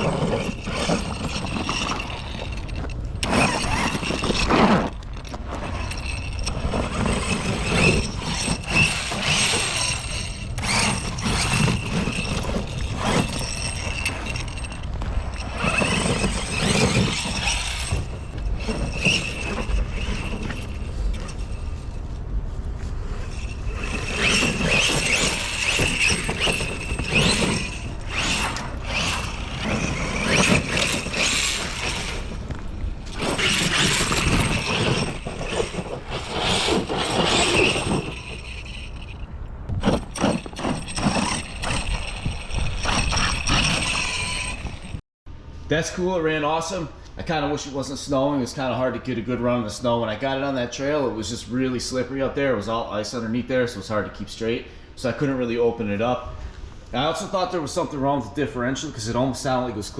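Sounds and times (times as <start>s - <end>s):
rc truck motor whine: 0.0s - 39.2s, 39.8s - 45.0s
drivetrain and tyres rumbling: 0.0s - 45.0s.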